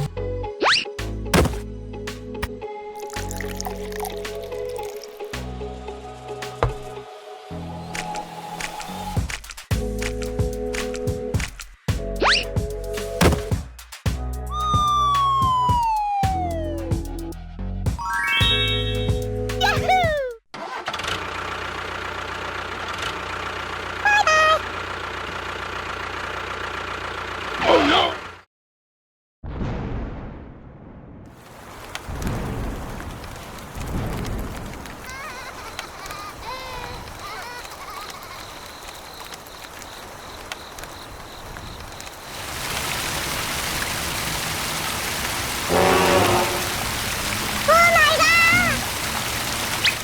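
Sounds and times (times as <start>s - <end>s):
small engine idling: 20.7s - 28.4s
hiss of running water: 31.4s - 50.0s.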